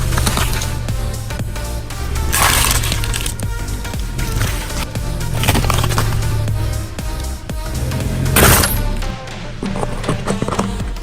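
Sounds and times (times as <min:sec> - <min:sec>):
noisy crunch-like burst: 0:00.0 - 0:10.8
background music with bass line: 0:00.0 - 0:11.0.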